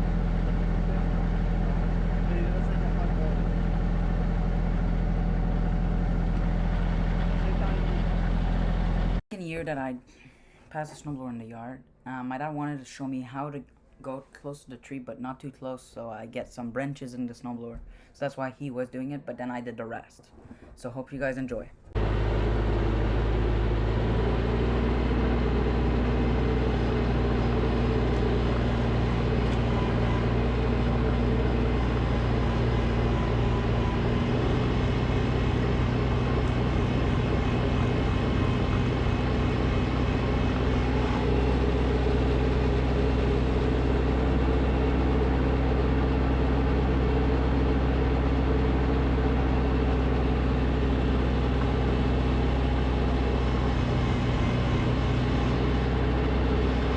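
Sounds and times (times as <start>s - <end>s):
snowblower engine running: 0.0s - 9.2s, 22.0s - 56.9s.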